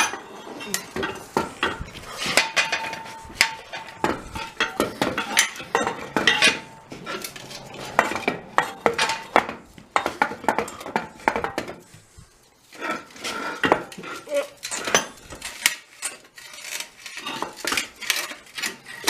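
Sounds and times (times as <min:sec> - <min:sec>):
metal tools clinking: 0:00.0 - 0:11.0.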